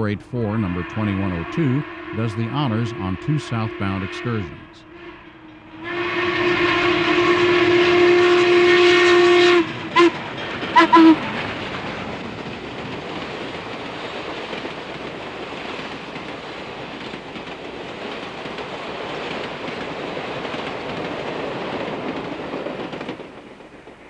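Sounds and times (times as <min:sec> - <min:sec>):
train wheels clattering on rails: 0:05.2 - 0:24.0.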